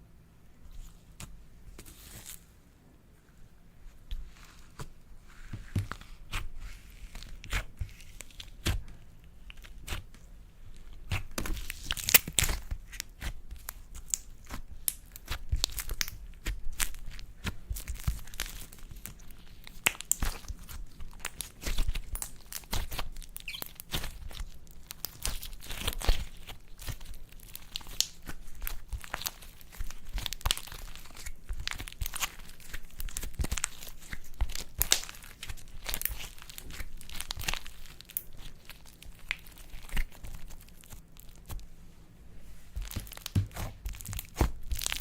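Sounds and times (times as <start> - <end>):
slime crackling and popping: 10.8 - 41.6, 42.7 - 45.0.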